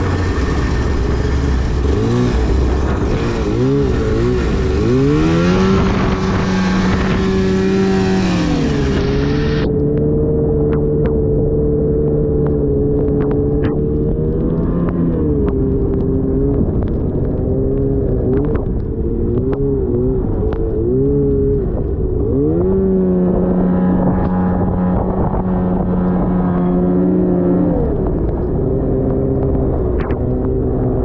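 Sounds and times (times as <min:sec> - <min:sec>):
snowmobile engine revving: 0:00.0 - 0:16.6, 0:22.3 - 0:28.2.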